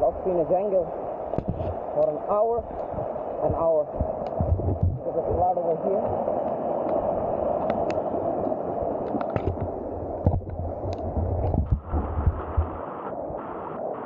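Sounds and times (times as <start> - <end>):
rushing floodwater: 0.0 - 14.0
small knocks and low thuds: 1.3 - 1.8, 2.9 - 5.0, 9.1 - 12.8.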